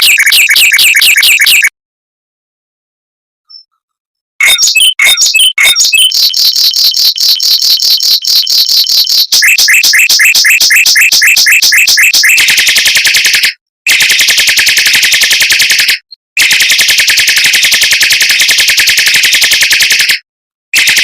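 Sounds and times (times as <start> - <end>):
mockingbird song: 3.5 - 3.8, 4.4 - 13.5.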